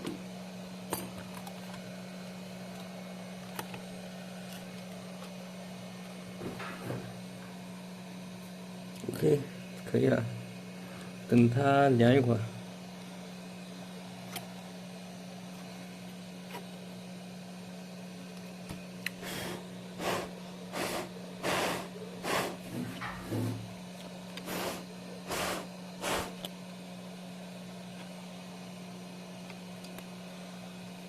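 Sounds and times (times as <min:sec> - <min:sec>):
low electrical hum: 0:00.0 - 0:31.0
short hissing air puffs: 0:19.2 - 0:23.6, 0:24.4 - 0:26.4.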